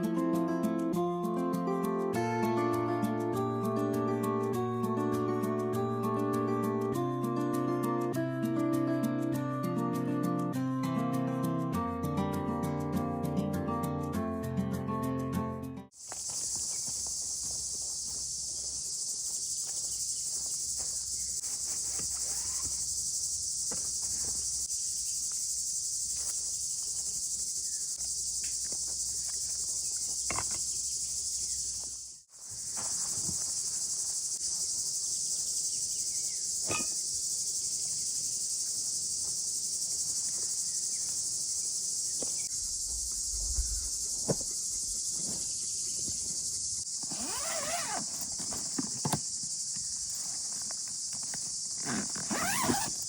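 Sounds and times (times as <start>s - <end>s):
crickets chirring: 0.1s - 11.7s, 15.9s - 53.0s.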